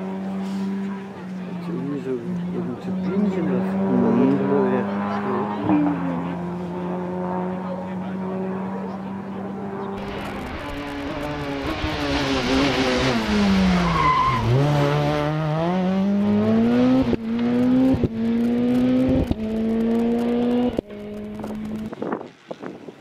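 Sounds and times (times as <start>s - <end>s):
rally car engine accelerating: 0.0s - 22.3s
tyre squeal: 13.7s - 14.6s.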